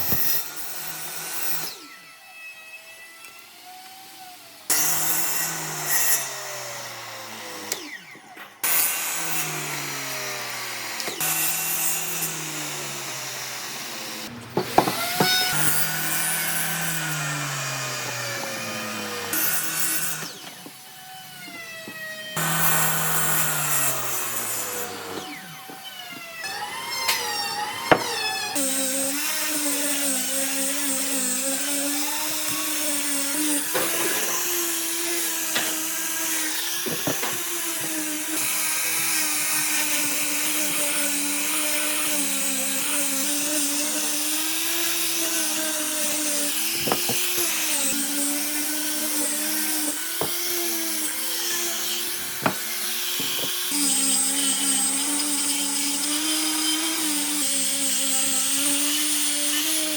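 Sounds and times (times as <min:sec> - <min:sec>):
electric power tool running: 0:00.0 - 0:59.9
sharp knocks: 0:14.5 - 0:15.6, 0:46.8 - 0:47.3.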